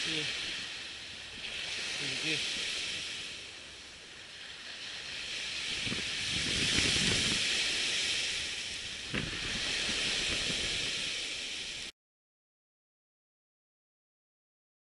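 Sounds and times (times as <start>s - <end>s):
surf washing on beach: 0.0s - 11.9s.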